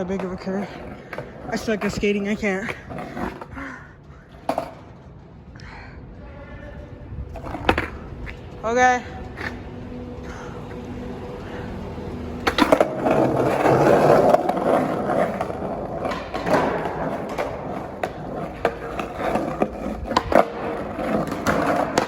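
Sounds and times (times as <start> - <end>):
skateboard clacking on ground: 0.0 - 3.6, 4.3 - 5.0, 7.3 - 9.6, 12.4 - 22.0
skateboard wheels rumbling: 0.0 - 5.5, 6.5 - 22.0.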